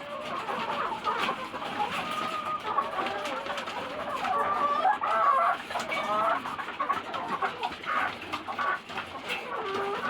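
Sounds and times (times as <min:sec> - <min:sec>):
hens clucking: 0:00.0 - 0:10.0.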